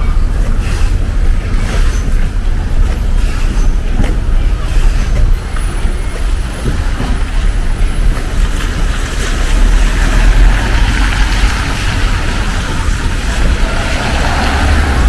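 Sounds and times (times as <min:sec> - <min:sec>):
traffic rumble: 0:00.0 - 0:15.0
wind on microphone: 0:09.5 - 0:15.0.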